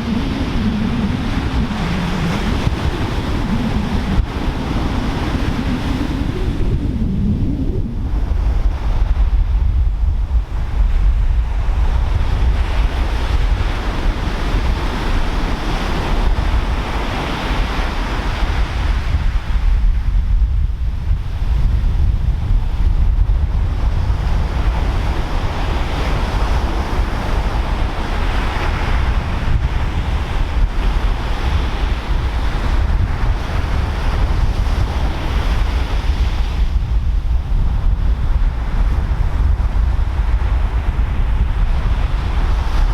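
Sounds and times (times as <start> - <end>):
ocean surf breaking: 0.0 - 9.6
wind buffeting microphone: 0.0 - 42.9.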